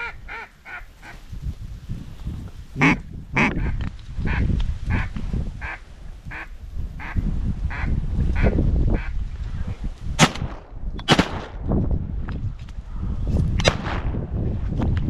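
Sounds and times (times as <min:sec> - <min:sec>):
waterfowl call: 0:02.8 - 0:09.1
shotgun blasts: 0:10.2 - 0:11.6, 0:13.6 - 0:14.2.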